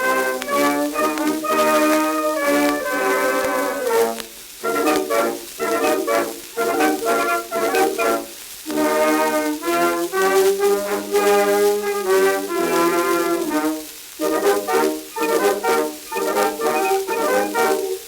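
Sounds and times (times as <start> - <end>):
brass band playing on old record: 0.0 - 18.0
record surface hiss: 0.0 - 18.0.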